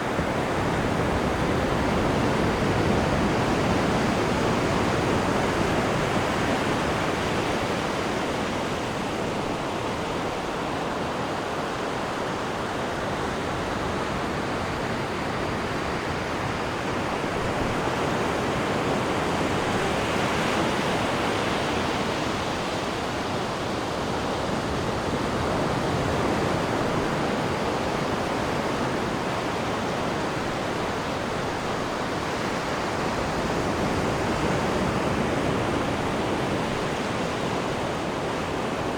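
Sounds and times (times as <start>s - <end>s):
sea water rushing in ship wake: 0.0s - 38.9s.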